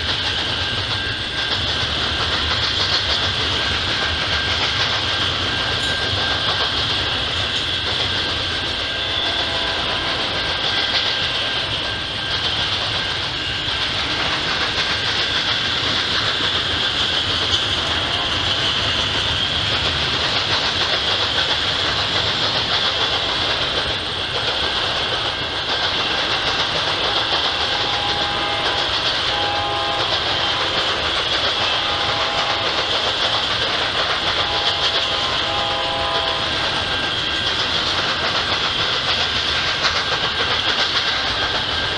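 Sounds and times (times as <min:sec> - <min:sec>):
clickety-clack of train cars: 0:00.0 - 0:41.9
freight train wheels rumbling: 0:00.0 - 0:41.9
train horn blasts: 0:08.8 - 0:10.4, 0:27.5 - 0:30.8, 0:31.6 - 0:32.8, 0:34.3 - 0:36.6.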